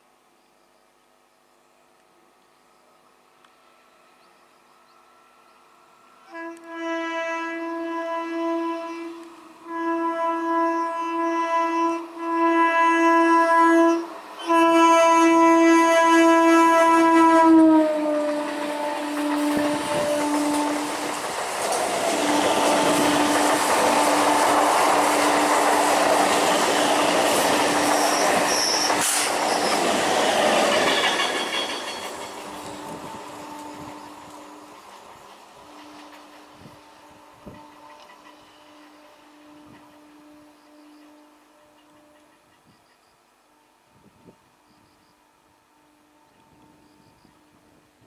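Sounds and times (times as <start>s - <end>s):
train horn blasts: 6.1s - 34.8s, 35.5s - 48.0s
train coaches clattering past: 15.9s - 43.1s.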